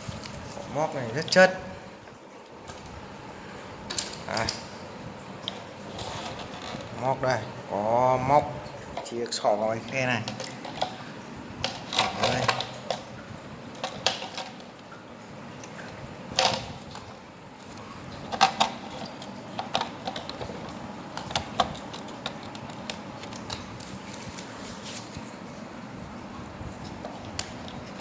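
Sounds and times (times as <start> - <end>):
small hard parts clicking: 11.6 - 14.7, 18.3 - 23.9.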